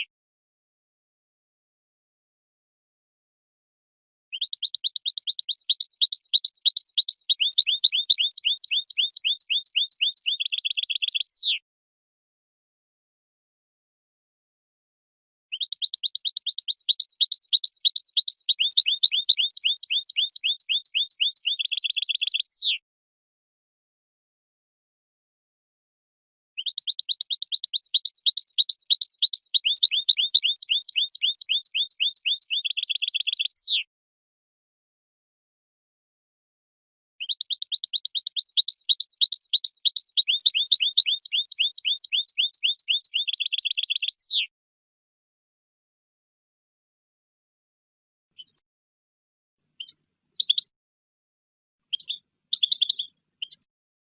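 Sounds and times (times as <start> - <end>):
finch singing: 4.3 - 11.6, 15.5 - 22.8, 26.6 - 33.9, 37.2 - 44.5, 48.4 - 48.6, 49.8 - 50.7, 51.9 - 53.7
goldfinch twittering song: 4.3 - 11.6, 15.5 - 22.8, 26.6 - 33.9, 37.2 - 44.5, 49.8 - 50.7, 51.9 - 53.7.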